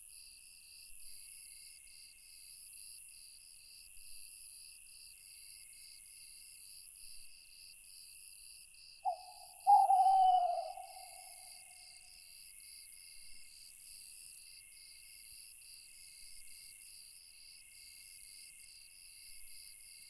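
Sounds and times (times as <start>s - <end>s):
crickets chirping: 9.0s - 11.7s
high insect drone: 9.1s - 11.6s
owl hooting: 9.1s - 11.7s.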